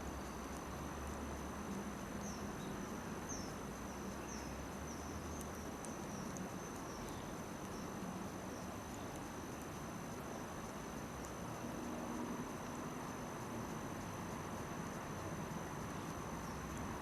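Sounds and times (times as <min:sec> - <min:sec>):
campfire crackles: 0:00.0 - 0:17.0
insects chirping: 0:00.0 - 0:17.0
low steady hiss: 0:00.0 - 0:17.0.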